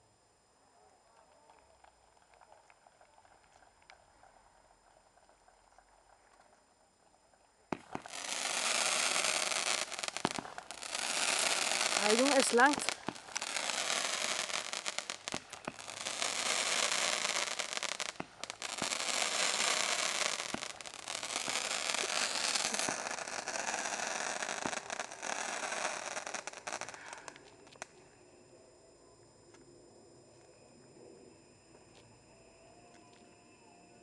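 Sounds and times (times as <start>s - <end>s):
fireworks crackling: 7.7s - 28.0s
fireworks popping: 7.7s - 28.0s.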